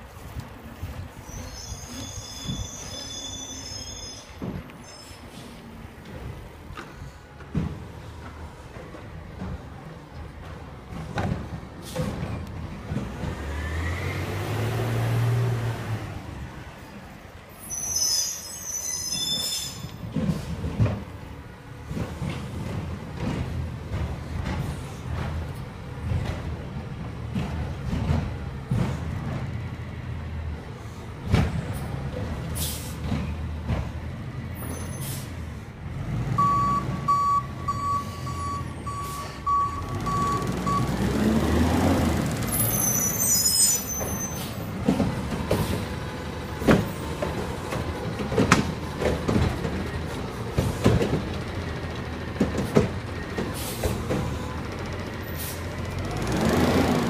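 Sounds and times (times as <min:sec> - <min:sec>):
air brakes hissing: 0:01.2 - 0:05.8, 0:11.8 - 0:12.3, 0:32.5 - 0:33.1, 0:34.6 - 0:35.7, 0:37.8 - 0:39.8, 0:42.5 - 0:44.7, 0:45.5 - 0:46.0, 0:53.5 - 0:54.6, 0:55.3 - 0:55.8
reverse alarm beeping: 0:36.4 - 0:41.0.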